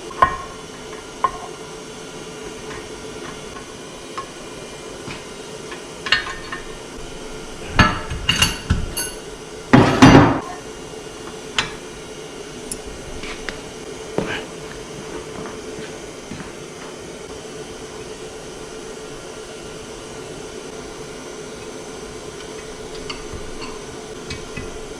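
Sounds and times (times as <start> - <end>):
faint steady hum: 0.0 - 24.9.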